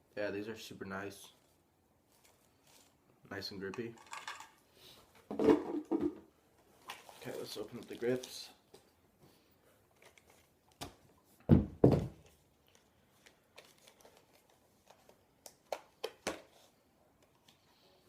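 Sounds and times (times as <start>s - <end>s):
packaging rustling and clicking: 12.2s - 16.5s.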